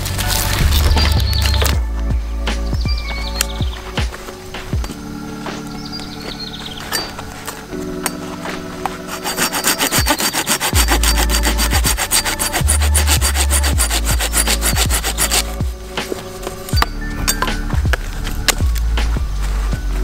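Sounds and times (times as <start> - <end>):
quiet background music: 0.0 - 20.0
rapid sawing strokes: 8.8 - 16.5.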